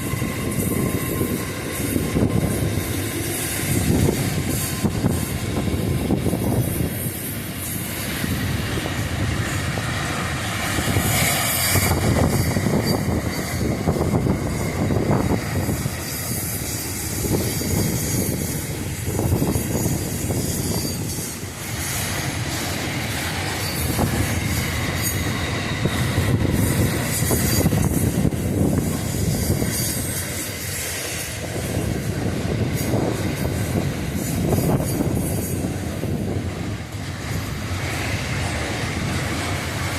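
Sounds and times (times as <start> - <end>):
wheels squealing: 0.0 - 31.9
train wheels clattering on rails: 0.0 - 39.9.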